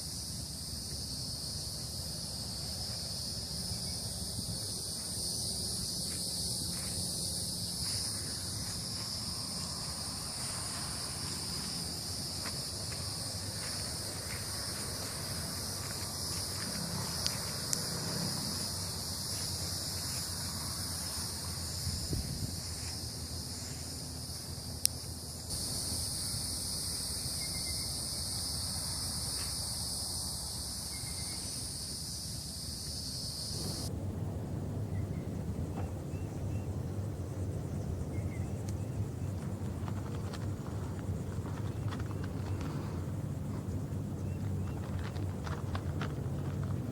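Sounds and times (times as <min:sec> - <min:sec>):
insects buzzing: 0:00.0 - 0:33.9, 0:34.5 - 0:46.9.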